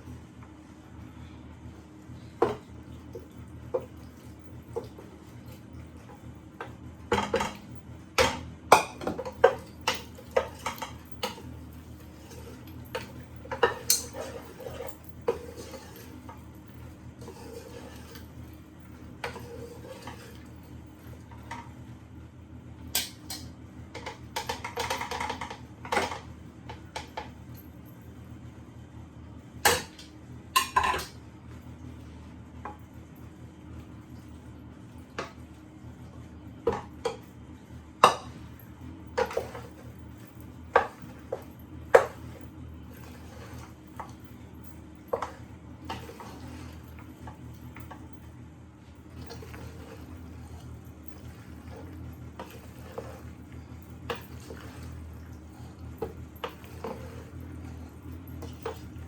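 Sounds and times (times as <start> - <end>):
steady low hum: 0.0 - 59.0
utensil clinking and scraping a pan: 6.0 - 21.8, 23.0 - 27.3, 30.6 - 31.2, 38.0 - 48.1, 49.0 - 59.0.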